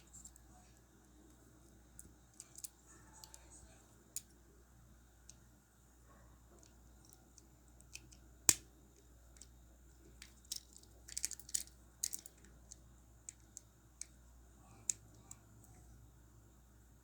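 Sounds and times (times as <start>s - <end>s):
toy locomotive bogie clicking: 10.2s - 14.1s.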